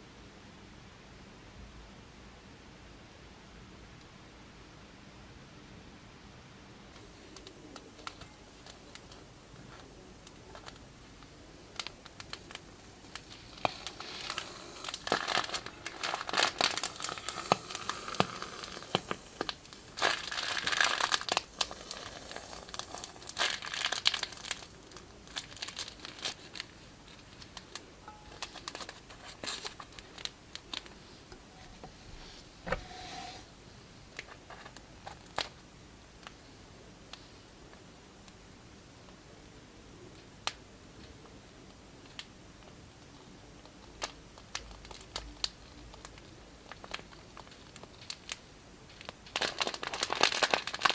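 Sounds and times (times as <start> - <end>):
plastic bags crinkling: 7.3 - 31.2, 43.6 - 50.9.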